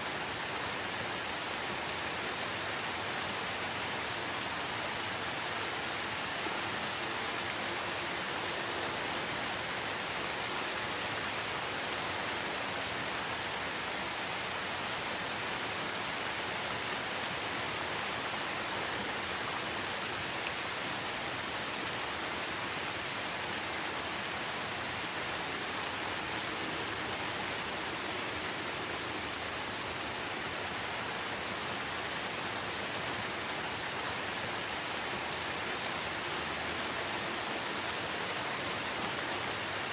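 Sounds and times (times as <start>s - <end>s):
rain on leaves: 0.0s - 39.9s.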